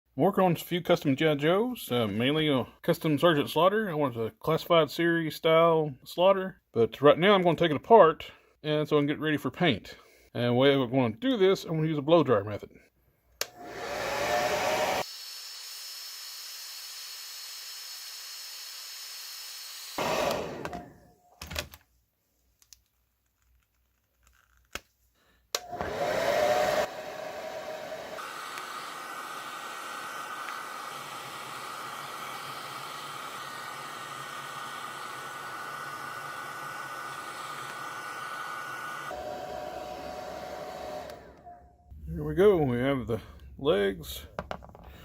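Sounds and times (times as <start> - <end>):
hair dryer blowing: 13.4 - 15.1, 19.0 - 21.1, 25.6 - 41.6.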